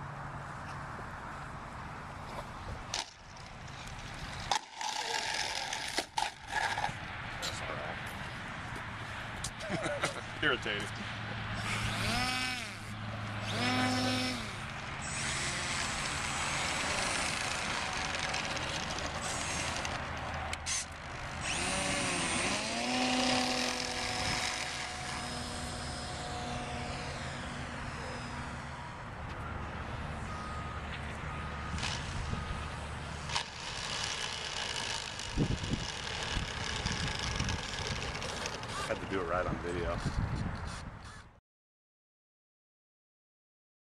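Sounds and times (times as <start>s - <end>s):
electric model plane motor whining: 3.0s - 6.9s, 11.6s - 29.1s, 31.7s - 39.2s.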